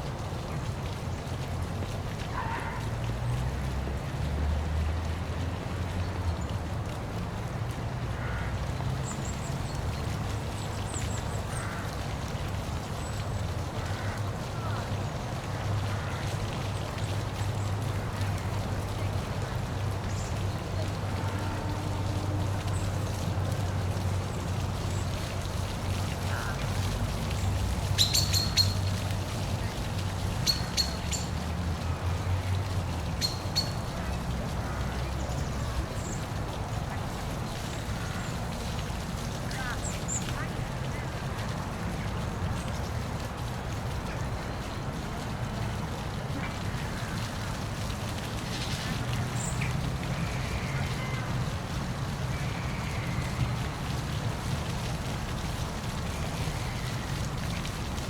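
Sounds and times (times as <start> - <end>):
waterfall rushing: 13.3 - 58.0.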